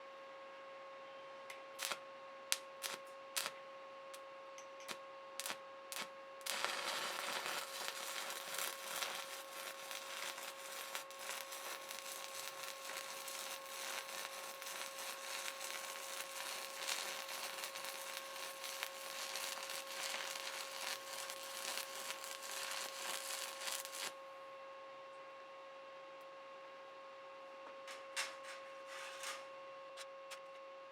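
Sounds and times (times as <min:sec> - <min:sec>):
welding arc crackling: 0:01.8 - 0:03.5, 0:04.9 - 0:24.2
steady whine: 0:02.8 - 0:24.4.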